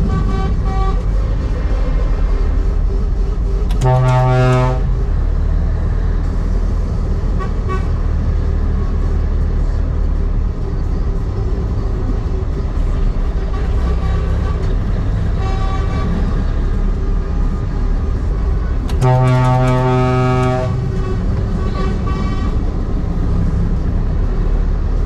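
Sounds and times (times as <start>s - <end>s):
truck horn blast: 0.0s - 1.1s, 3.7s - 5.0s, 7.3s - 8.1s, 13.5s - 16.4s, 18.9s - 22.7s
truck engine rumbling: 0.0s - 25.0s
faint truck horn toots: 3.7s - 4.9s, 18.9s - 22.6s.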